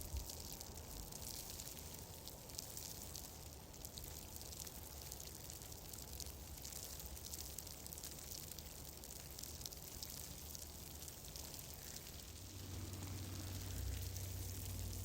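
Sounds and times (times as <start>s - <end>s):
fireplace crackling: 0.0s - 15.0s
low rumble: 12.3s - 15.0s.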